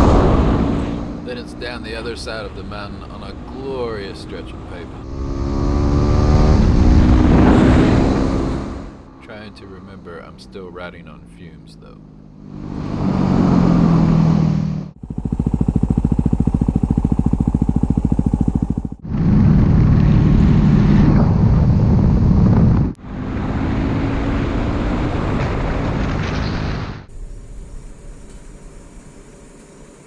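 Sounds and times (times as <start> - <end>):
motorcycle engine: 0.0 - 30.0
wind noise: 19.0 - 29.2.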